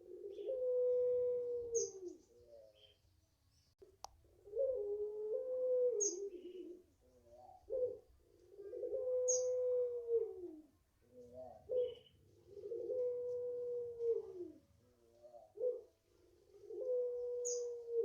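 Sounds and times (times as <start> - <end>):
dove cooing: 0.0 - 3.0, 3.8 - 18.0.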